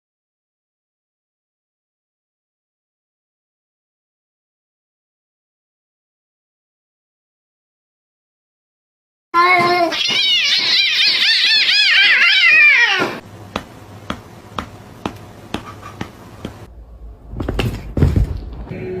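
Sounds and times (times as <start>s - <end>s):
cat meowing: 9.4s - 13.2s
low rumble with knocks: 16.4s - 18.8s.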